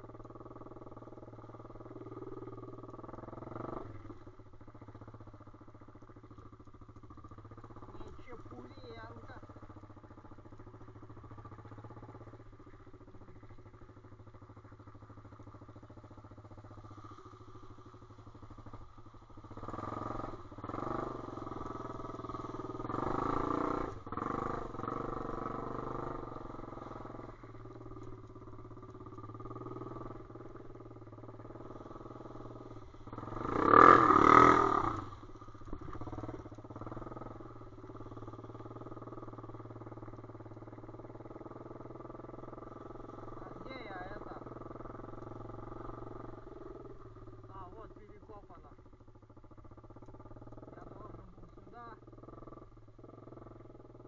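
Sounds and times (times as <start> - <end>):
single-cylinder motorbike engine: 0.0 - 54.0.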